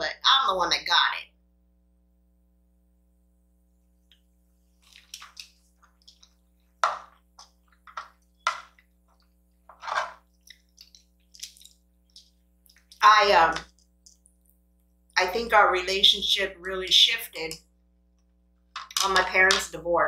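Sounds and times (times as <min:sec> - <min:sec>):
wet chewing clicks: 0:04.8 - 0:06.4, 0:10.3 - 0:13.0, 0:13.6 - 0:14.6
lip smacks: 0:10.3 - 0:13.0.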